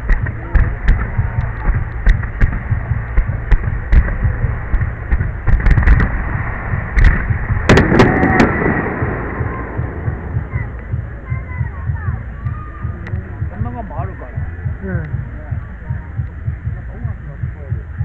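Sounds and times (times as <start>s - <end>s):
fireworks bangs and crackles: 0.0s - 10.7s
low rumble: 0.0s - 18.0s.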